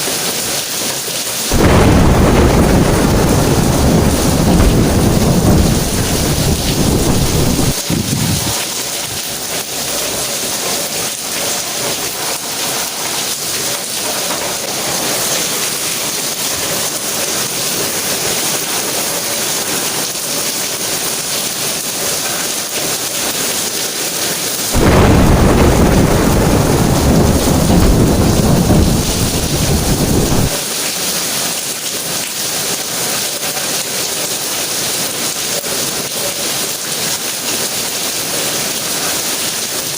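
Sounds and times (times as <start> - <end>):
heavy rain hissing: 0.0 - 39.9
thunder rumbling: 1.5 - 9.2, 24.8 - 30.6.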